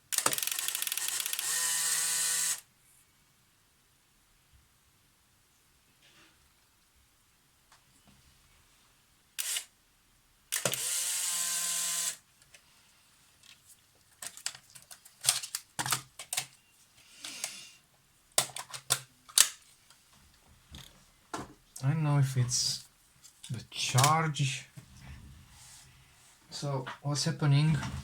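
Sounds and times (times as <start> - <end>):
camera mechanical burst: 0.1 - 2.6, 9.4 - 9.7, 10.5 - 12.2
camera motor whir: 0.1 - 2.6, 9.4 - 9.7, 10.5 - 12.2
rapid shutter clicks: 0.1 - 2.6, 9.4 - 9.7, 10.5 - 12.2.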